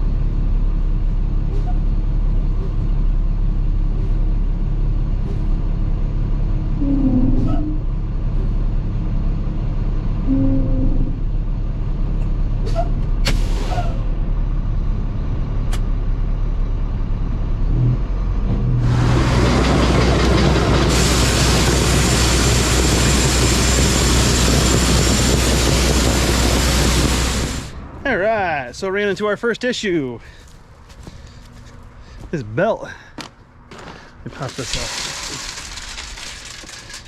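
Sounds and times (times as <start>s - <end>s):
diesel engine running: 0.0s - 29.1s, 33.4s - 37.0s.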